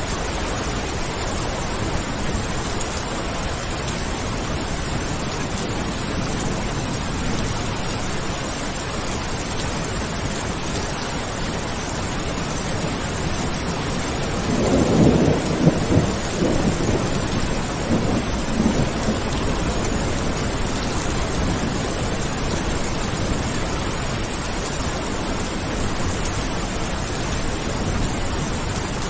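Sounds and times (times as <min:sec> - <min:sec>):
heavy rain: 0:00.0 - 0:29.0
thunder rumble: 0:12.8 - 0:29.0.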